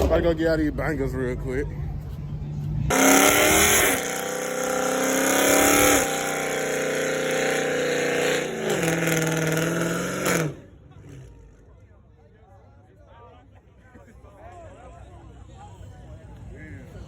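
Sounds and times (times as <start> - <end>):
car engine revving: 2.9 - 11.6.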